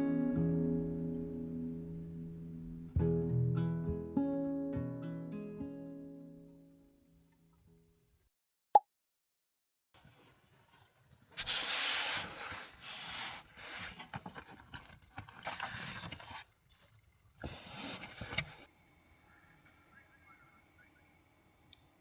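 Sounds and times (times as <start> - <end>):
rubbing and scraping handling noise: 10.0 - 18.7.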